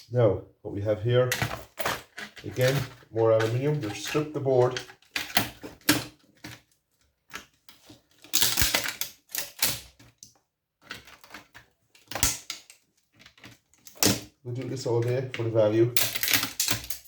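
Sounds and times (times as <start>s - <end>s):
metal parts and tools clattering: 16.0s - 17.0s.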